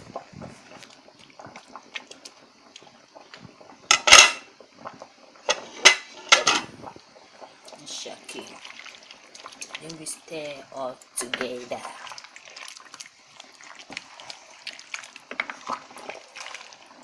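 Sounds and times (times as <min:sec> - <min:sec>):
metal cookware clanking: 0:03.9 - 0:04.5, 0:05.5 - 0:06.7.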